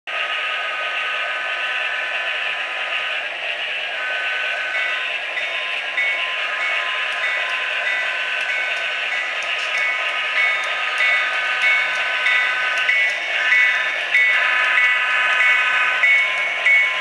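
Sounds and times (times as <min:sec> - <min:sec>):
model trains whirring hum: 0:00.1 - 0:17.0
high steady tones: 0:03.9 - 0:17.0.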